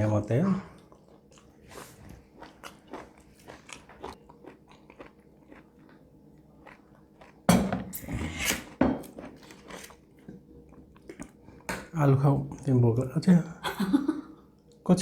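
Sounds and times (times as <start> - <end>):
wet chewing clicks: 0.7 - 6.0.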